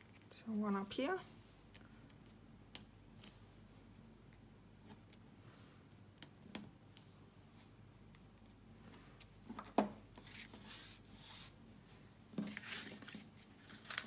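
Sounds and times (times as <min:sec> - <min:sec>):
paper and card rustling: 0:10.2 - 0:14.0.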